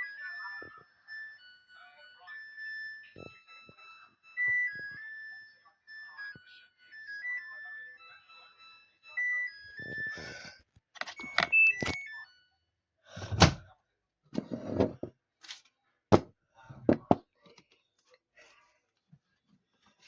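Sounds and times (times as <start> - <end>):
washing machine electronic tune: 0.0 - 12.6
high beeps: 11.0 - 12.3.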